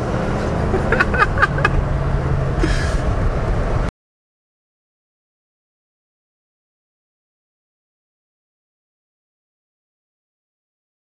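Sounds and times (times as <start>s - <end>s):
car engine running: 0.0s - 3.9s.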